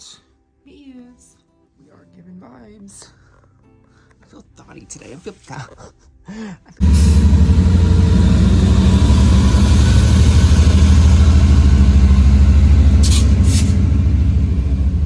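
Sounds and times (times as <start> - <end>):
moving vehicle rumble: 6.8 - 15.0
short hisses: 12.9 - 13.8.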